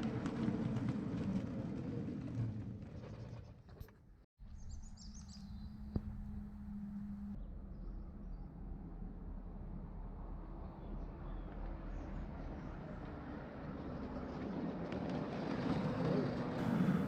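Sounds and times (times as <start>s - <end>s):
miniature train rumbling on rails: 0.0s - 3.7s, 11.6s - 17.0s
steady low hum: 4.8s - 7.4s, 16.6s - 17.0s.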